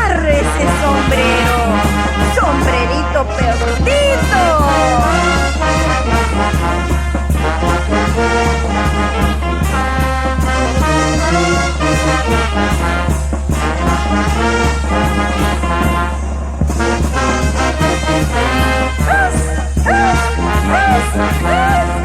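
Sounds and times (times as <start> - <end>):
percussion beat: 0.0 - 22.0
trumpets and trombones playing: 0.0 - 22.0.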